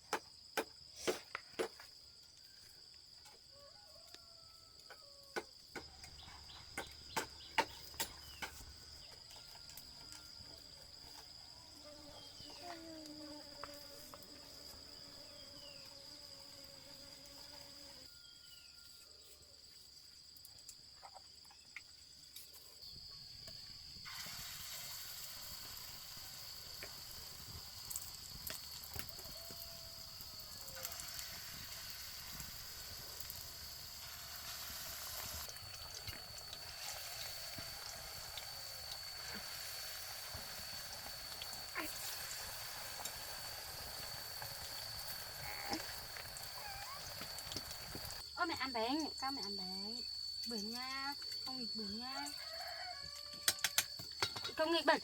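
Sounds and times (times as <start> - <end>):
crickets droning: 0.0 - 55.0
food frying in hot oil: 24.0 - 48.2.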